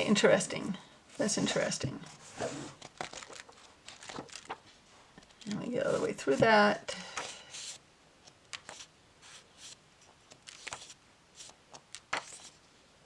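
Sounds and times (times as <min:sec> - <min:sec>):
paper pages rustling: 0:02.3 - 0:06.2, 0:07.2 - 0:12.6.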